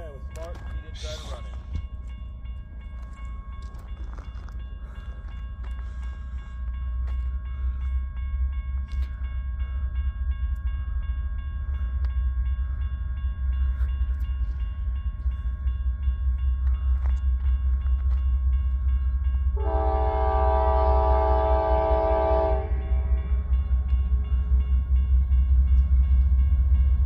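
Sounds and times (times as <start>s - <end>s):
train rumbling past: 0.0s - 27.0s.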